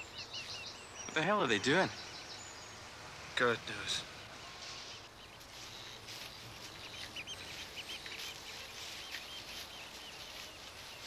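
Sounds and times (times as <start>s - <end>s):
small birds chirping: 0.0s - 11.0s
soft rustling: 4.6s - 11.0s.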